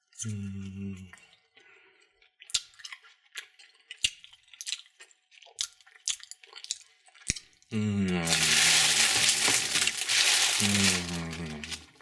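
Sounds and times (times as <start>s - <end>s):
plastic wrappers crinkling: 8.2s - 12.0s.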